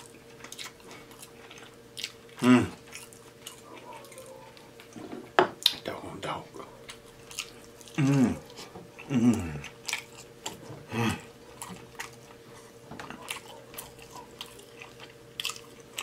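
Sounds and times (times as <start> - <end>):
chewing and lip-smacking: 0.0 - 5.0, 6.6 - 16.0
low vocal hums: 2.4 - 2.8, 7.9 - 9.8, 10.7 - 11.6.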